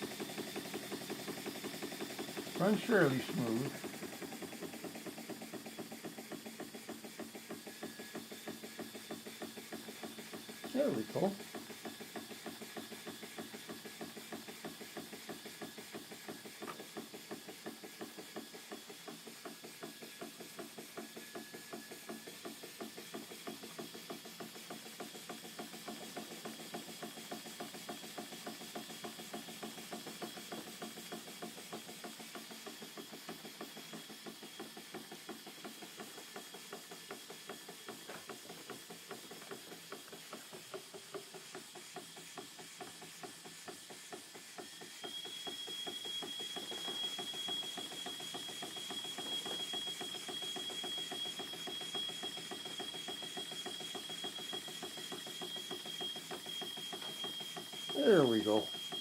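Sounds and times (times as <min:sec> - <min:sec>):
toy steam engine exhaust beat: 0:00.0 - 0:59.0.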